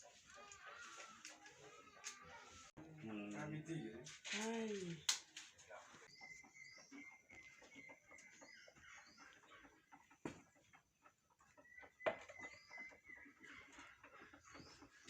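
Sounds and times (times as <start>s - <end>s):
chickens clucking: 0.0s - 4.0s, 5.7s - 15.0s
small birds chirping: 0.0s - 15.0s.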